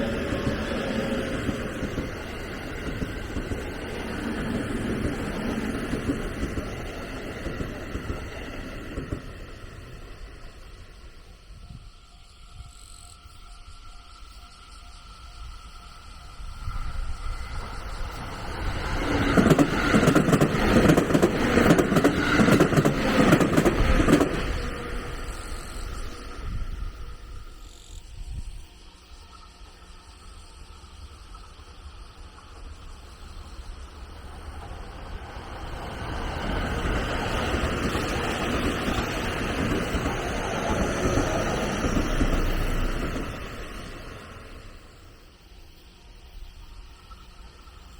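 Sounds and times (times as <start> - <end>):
train wheels clattering: 0.0 - 9.8, 17.7 - 26.6, 34.6 - 44.3
insects droning: 0.0 - 47.9.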